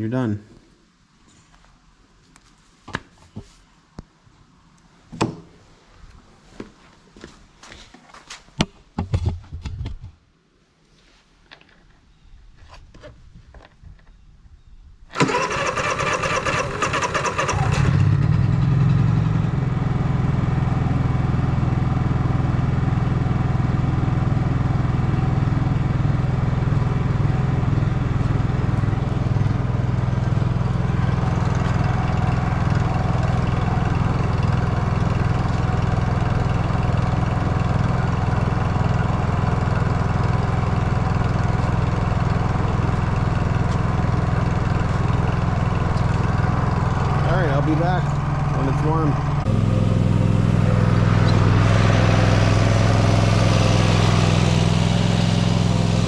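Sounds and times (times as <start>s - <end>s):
generator engine starting: 15.1s - 19.5s, 44.0s - 56.0s
generator engine running: 15.2s - 56.0s.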